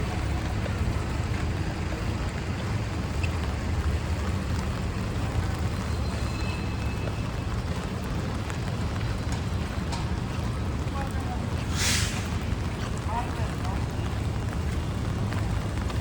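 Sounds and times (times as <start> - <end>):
traffic rumble: 0.0 - 16.0
rain hiss: 10.4 - 14.3.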